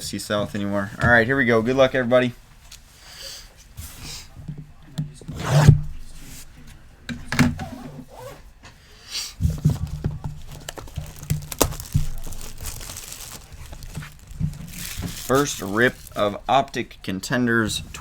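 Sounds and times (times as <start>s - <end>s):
box taps and crackles: 9.5s - 16.4s
wrapping tearing and crinkling: 9.7s - 16.6s.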